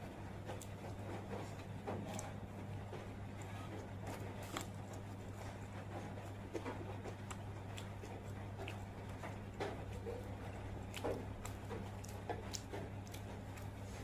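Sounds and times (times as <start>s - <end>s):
steady low hum: 0.0s - 14.0s
person chewing: 0.5s - 14.0s.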